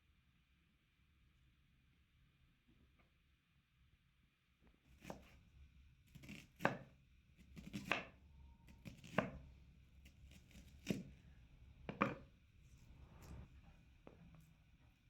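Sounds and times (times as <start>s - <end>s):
knife chopping on cutting board: 5.0s - 5.4s, 6.1s - 8.1s, 8.8s - 9.4s, 10.0s - 11.2s, 11.9s - 12.3s.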